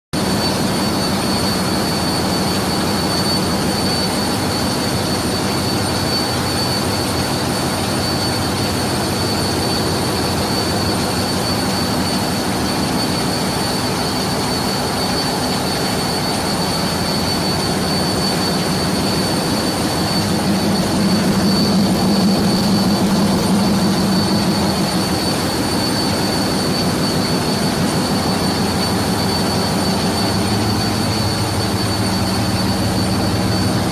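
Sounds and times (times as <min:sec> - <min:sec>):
turbocharger high whine: 0:00.2 - 0:33.9
gas engine running: 0:07.2 - 0:33.9.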